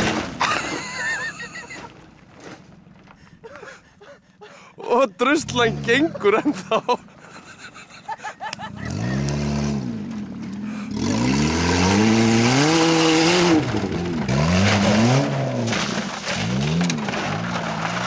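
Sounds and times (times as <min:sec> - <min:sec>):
wheels spinning on gravel: 0:08.2 - 0:18.0
car engine revving hard: 0:08.7 - 0:18.0.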